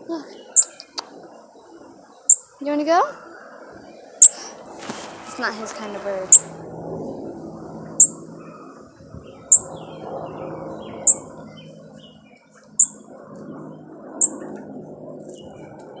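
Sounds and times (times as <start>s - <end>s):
loud high bird chirps: 0.3s - 1.0s, 4.2s - 6.6s, 8.0s - 8.2s, 9.2s - 13.1s, 14.2s - 14.6s.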